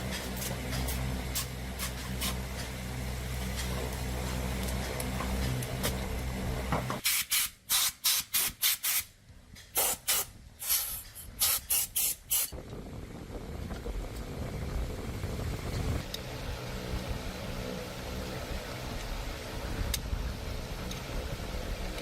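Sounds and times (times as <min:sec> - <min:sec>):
low hum: 0:00.0 - 0:07.0
pressurised spray hiss bursts: 0:00.1 - 0:02.4, 0:07.0 - 0:09.1, 0:09.7 - 0:12.5.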